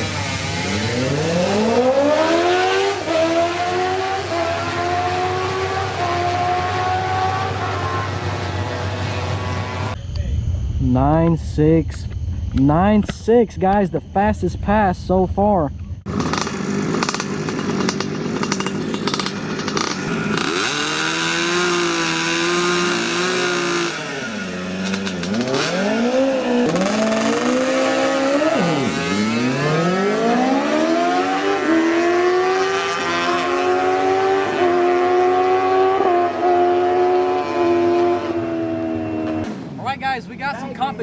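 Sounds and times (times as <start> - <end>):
drag racing engine at full throttle: 0.0 - 10.0, 10.8 - 39.8
rough crackling engine noise: 7.2 - 30.4.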